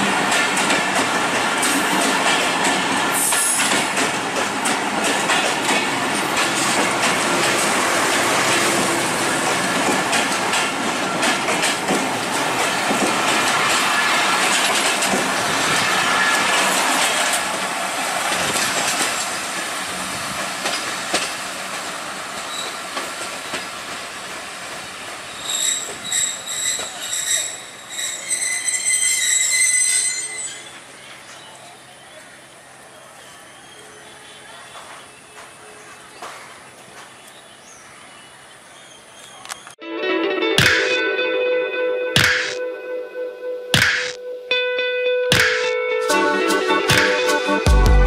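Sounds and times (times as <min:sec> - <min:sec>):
train wheels clattering over rail joints: 0:00.0 - 0:17.6, 0:18.2 - 0:27.4
high-pitched wheel squeal: 0:25.4 - 0:30.8.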